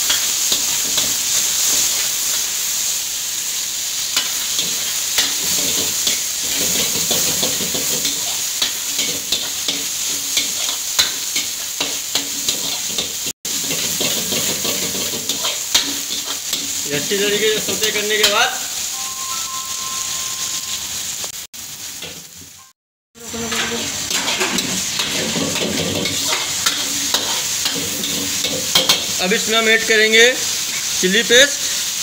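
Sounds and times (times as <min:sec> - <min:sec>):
food sizzling in hot oil: 0:00.0 - 0:32.0
metal ladle scraping wok: 0:04.2 - 0:16.8, 0:23.3 - 0:29.2.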